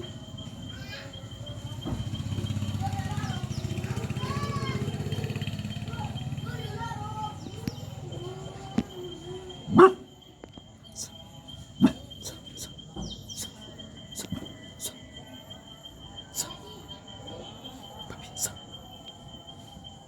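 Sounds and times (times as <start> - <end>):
arching pitched calls: 2.2 - 10.1
dog barking: 9.6 - 10.2, 11.8 - 12.1.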